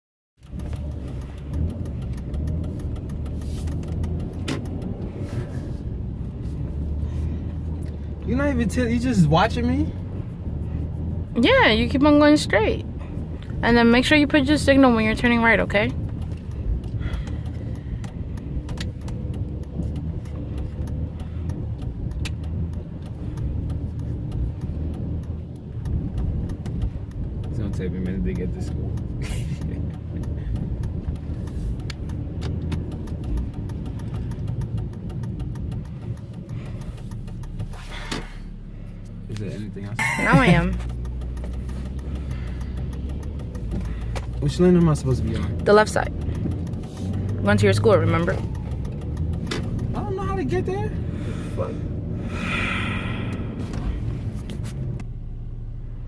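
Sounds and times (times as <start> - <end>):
faint clicks: 0.4 - 5.1, 13.4 - 38.2, 40.7 - 50.1
car engine and road rumble: 0.4 - 56.0.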